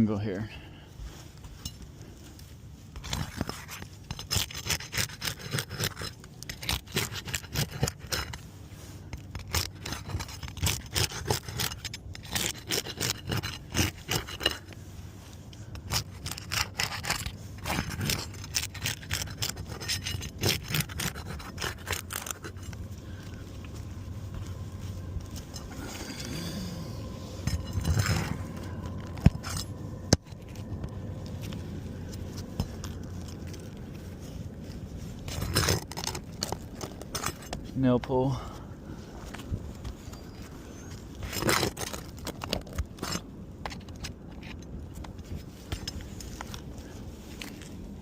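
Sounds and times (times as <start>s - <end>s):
tool scraping roof shingles: 3.0s - 8.4s, 9.2s - 14.8s, 15.7s - 22.7s, 35.3s - 37.6s, 41.2s - 44.6s.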